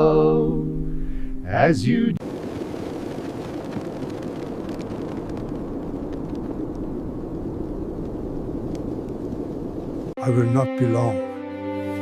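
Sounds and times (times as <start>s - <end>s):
blizzard wind rushing: 2.2s - 10.2s.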